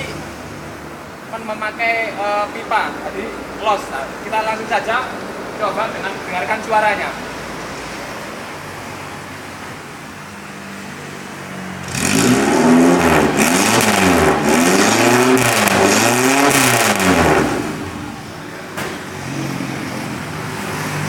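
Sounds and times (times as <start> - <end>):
motorcycle engine idling and revving: 8.1 - 21.0.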